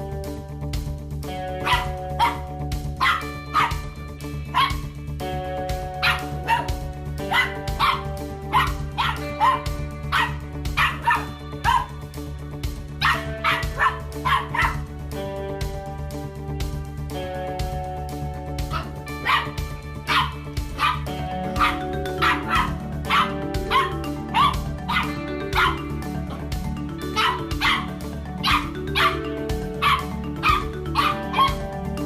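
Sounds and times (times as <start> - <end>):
background music: 0.0 - 32.0
dog barking: 1.6 - 4.9, 6.0 - 12.0, 13.0 - 14.8, 18.7 - 26.4, 27.1 - 29.2, 29.8 - 31.6.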